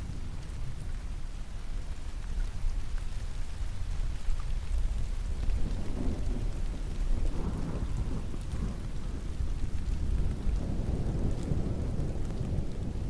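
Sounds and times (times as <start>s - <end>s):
steady rain falling: 0.0s - 13.0s
distant thunder rumble: 5.7s - 13.0s.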